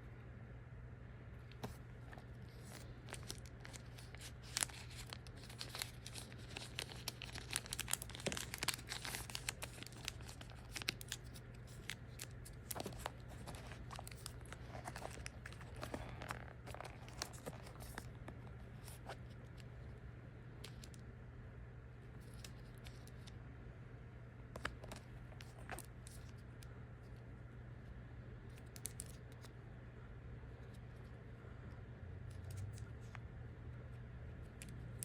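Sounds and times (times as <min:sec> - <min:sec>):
faint steady hum: 0:00.0 - 0:35.0
packaging crinkling: 0:01.5 - 0:18.3.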